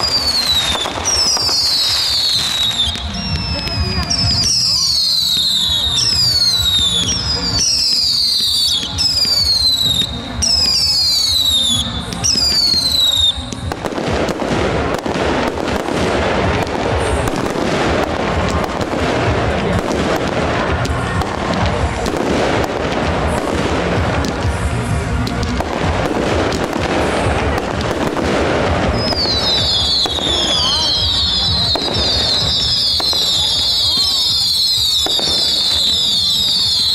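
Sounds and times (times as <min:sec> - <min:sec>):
firework whistles falling: 0:00.0 - 0:14.4, 0:28.9 - 0:36.9
fireworks crackling: 0:00.0 - 0:36.9.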